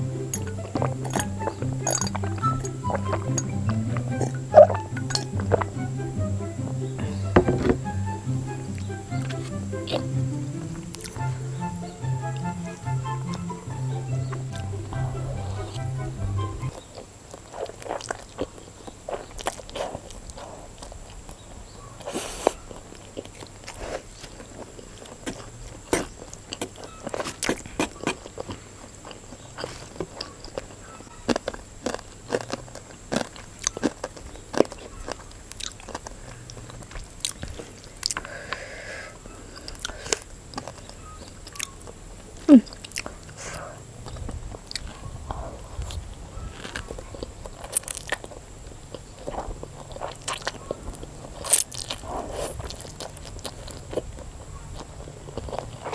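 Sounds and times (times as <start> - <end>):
chewing and biting noodles: 16.7 - 38.3, 39.5 - 55.9.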